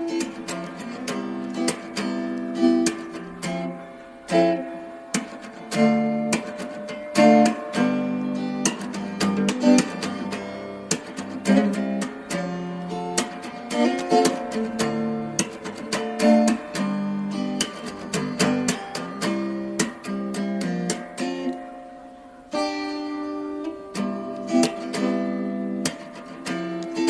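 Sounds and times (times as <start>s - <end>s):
acoustic guitar strummed chords: 0.0s - 27.0s
plucked guitar notes: 0.0s - 27.0s.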